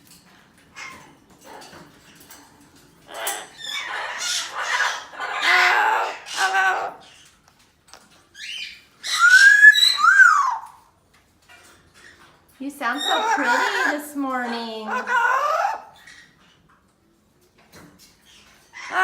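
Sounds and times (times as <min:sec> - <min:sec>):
parrot chattering calls: 0:03.0 - 0:07.3, 0:08.3 - 0:10.9, 0:12.8 - 0:16.4, 0:18.7 - 0:19.0
parrot whistled call: 0:08.4 - 0:10.9.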